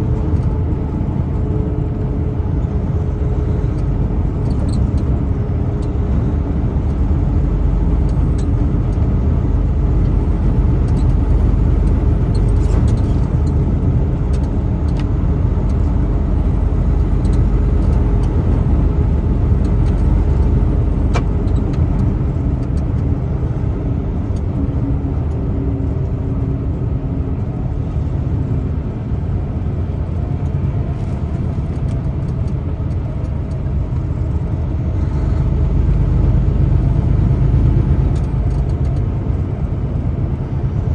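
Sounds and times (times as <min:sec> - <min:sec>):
truck engine and road rumble: 0:00.0 - 0:40.9.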